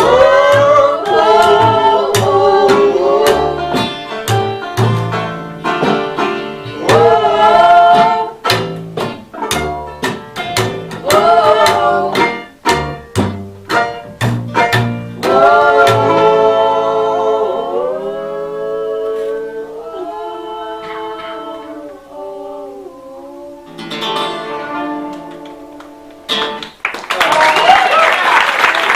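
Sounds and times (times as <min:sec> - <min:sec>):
plucked and strummed strings: 0:00.0 - 0:17.4, 0:23.7 - 0:26.8.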